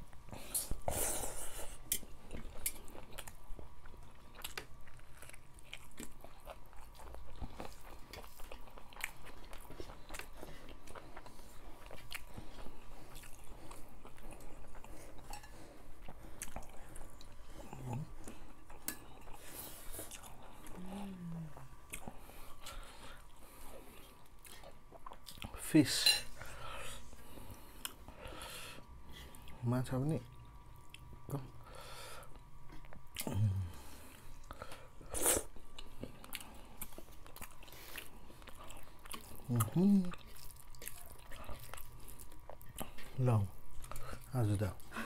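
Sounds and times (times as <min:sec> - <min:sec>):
wet chewing and mouth smacks: 0:34.4 - 0:43.2.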